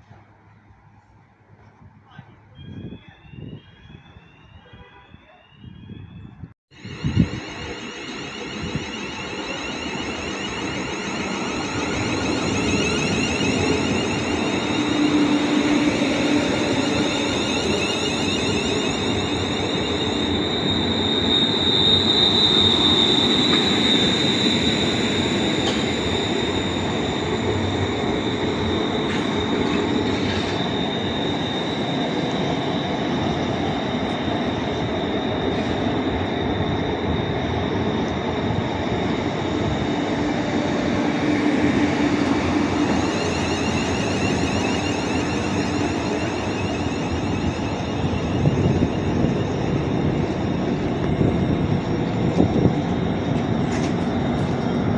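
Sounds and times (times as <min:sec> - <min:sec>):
high-pitched tone: 0:06.8 - 0:29.8
train rolling: 0:06.8 - 0:54.9.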